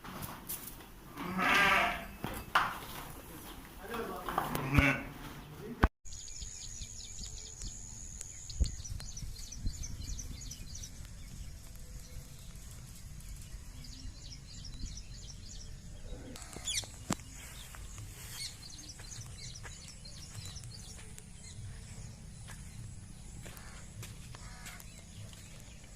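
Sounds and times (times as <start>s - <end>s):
small birds chirping: 5.2s - 25.9s
steady low rumble: 6.8s - 25.9s.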